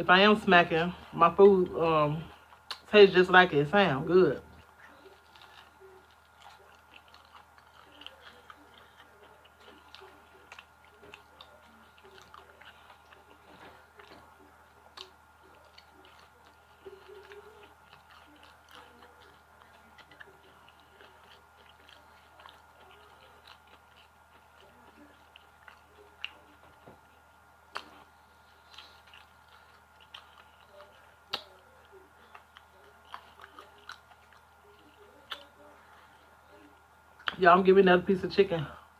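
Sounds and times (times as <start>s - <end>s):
chewing crunchy fried chicken: 0.1s - 37.6s
mouth smacking: 30.0s - 34.4s.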